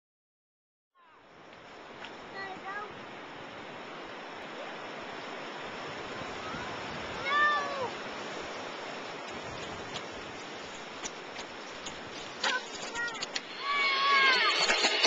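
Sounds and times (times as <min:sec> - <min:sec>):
wind rushing over microphone: 0:01.8 - 0:15.0
short high call: 0:13.4 - 0:15.0.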